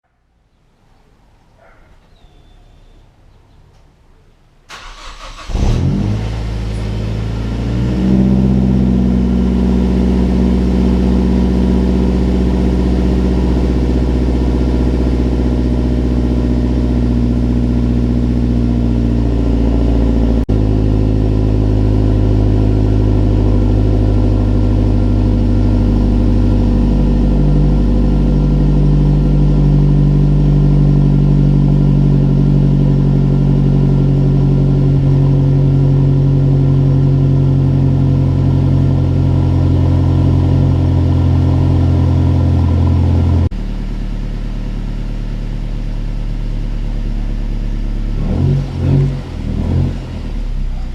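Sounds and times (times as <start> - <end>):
car engine cranking and idling: 4.7 - 50.9.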